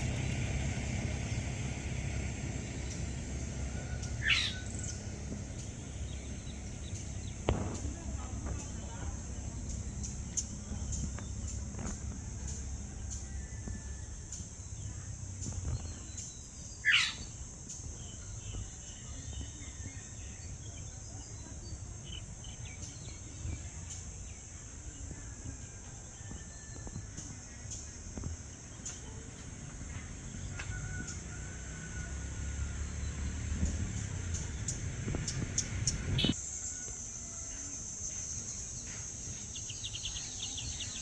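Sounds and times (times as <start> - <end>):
sweeping bird call: 0.0 - 11.7, 15.8 - 17.5, 30.8 - 41.0
bird chirps: 0.0 - 24.3, 32.8 - 36.9, 37.5 - 41.0
low background rumble: 0.0 - 25.2, 27.0 - 36.4
insect chorus: 0.0 - 41.0.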